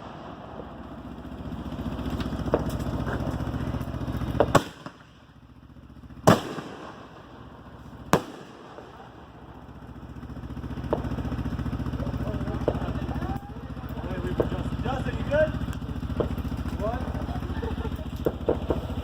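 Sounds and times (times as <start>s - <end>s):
loud sharp firework bangs: 0.0s - 13.4s, 14.2s - 19.0s
engine running with even beat: 0.0s - 19.0s
small firework pops: 1.9s - 5.4s, 6.3s - 7.2s, 8.1s - 9.1s, 10.8s - 11.6s, 12.6s - 14.7s, 15.6s - 16.8s, 18.0s - 19.0s.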